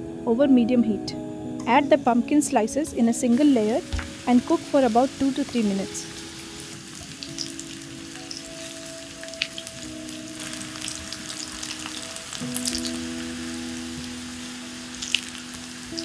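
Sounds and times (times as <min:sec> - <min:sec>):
frying sizzle with crackles: 0:03.3 - 0:16.0.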